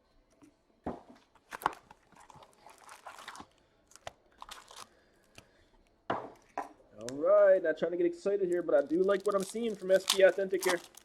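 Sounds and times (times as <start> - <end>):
wrappers crinkling and tearing: 1.4 - 5.4, 8.4 - 11.0.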